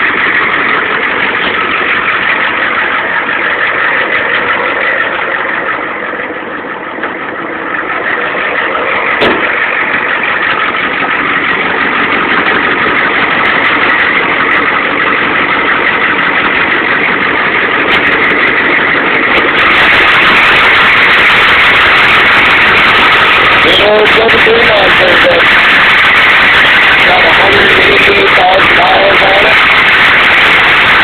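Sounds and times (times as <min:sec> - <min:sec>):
diesel engine idling: 0:00.0 - 0:31.0
short knock: 0:09.2 - 0:09.6.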